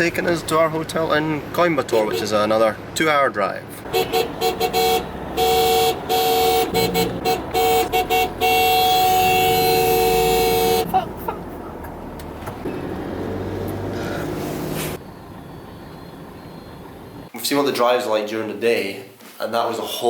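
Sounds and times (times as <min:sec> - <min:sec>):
road and engine noise: 0:00.0 - 0:17.4
two-tone vehicle horn honking: 0:03.9 - 0:11.0.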